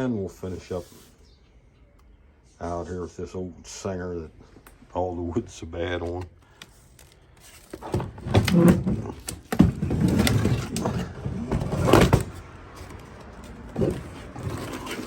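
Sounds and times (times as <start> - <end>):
wood cracking and scraping: 6.9 - 15.0.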